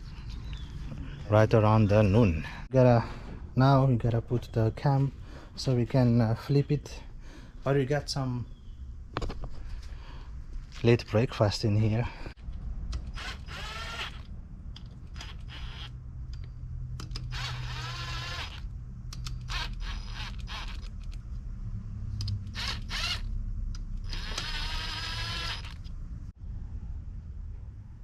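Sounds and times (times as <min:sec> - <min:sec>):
drawn-out squeaks: 0:13.1 - 0:14.3, 0:15.0 - 0:16.0, 0:17.2 - 0:21.2, 0:22.2 - 0:23.4, 0:24.0 - 0:25.9.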